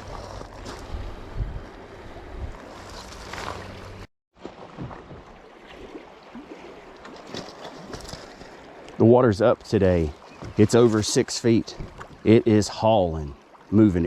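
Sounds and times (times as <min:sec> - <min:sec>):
wind on the microphone: 0:00.0 - 0:02.7
water splashing around a kayak: 0:00.0 - 0:14.0.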